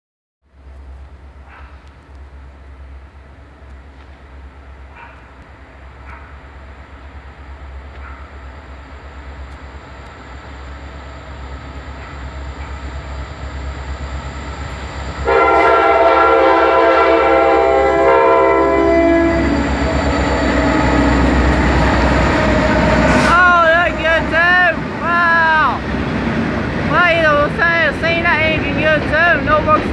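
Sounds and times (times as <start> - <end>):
diesel locomotive rumble: 0.5 - 29.9
train air horn: 15.2 - 19.8.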